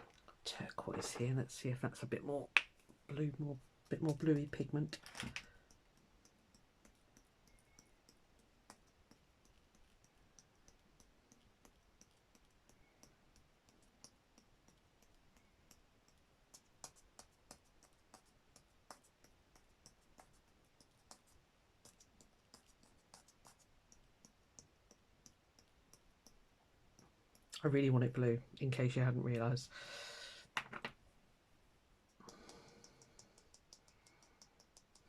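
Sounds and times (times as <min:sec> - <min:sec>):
small clicks and taps: 0:03.8 - 0:27.6, 0:32.1 - 0:35.0.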